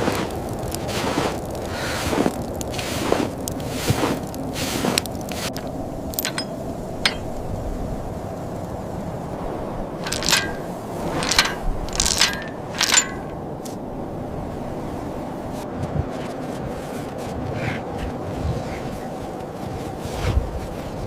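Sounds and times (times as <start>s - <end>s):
sharp metallic clinks: 6.1s - 7.4s, 10.0s - 13.4s.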